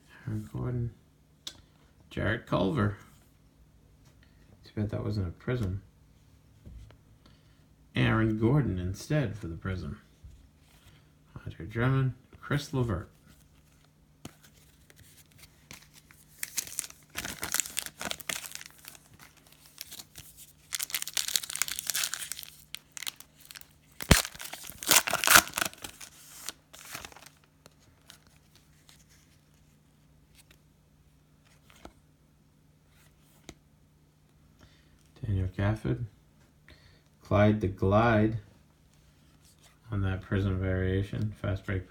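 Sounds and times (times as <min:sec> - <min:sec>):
low steady hum: 0:00.0 - 0:41.9
plastic wrapper tearing and crinkling: 0:15.7 - 0:28.4
wrapper sharp snap: 0:23.0 - 0:26.1.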